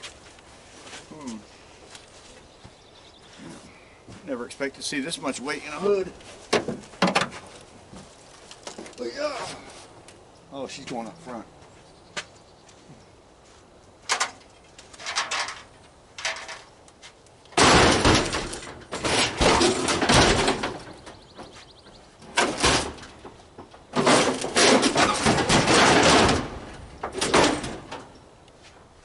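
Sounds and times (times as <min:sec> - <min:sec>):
metal scraping and clanking: 0:14.1 - 0:16.7, 0:17.6 - 0:21.1, 0:22.3 - 0:28.1.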